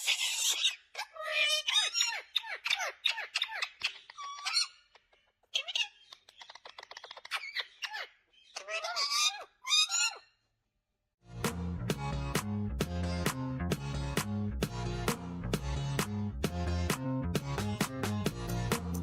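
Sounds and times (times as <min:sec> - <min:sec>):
animal squeaky calls: 0:00.0 - 0:10.3.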